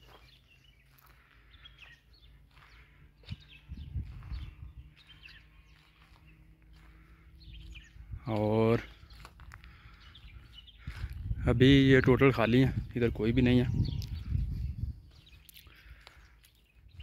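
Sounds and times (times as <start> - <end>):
small bird chirps: 13.7 - 17.0.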